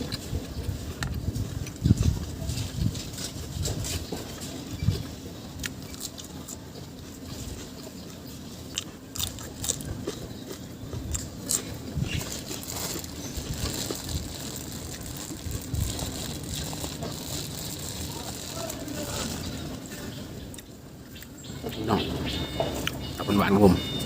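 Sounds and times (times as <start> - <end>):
person chewing food: 0.0 - 2.3, 5.5 - 18.6
food crunches: 0.0 - 21.4.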